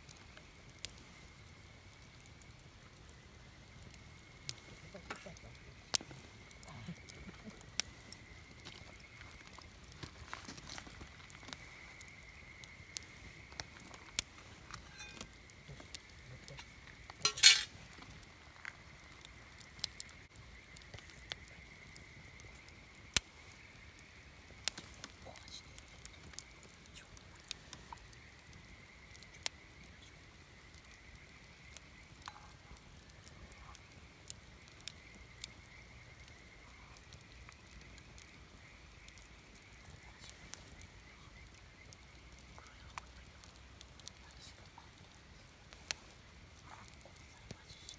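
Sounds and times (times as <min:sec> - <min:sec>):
campfire crackling: 0:00.0 - 0:47.9.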